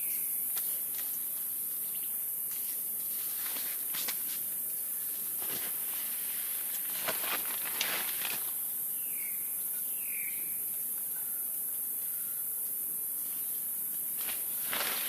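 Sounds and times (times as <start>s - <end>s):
insect chorus hiss: 0.0s - 15.0s
rustling footsteps: 2.5s - 4.5s, 5.2s - 8.6s, 14.2s - 15.0s
bird chirps: 9.0s - 11.4s.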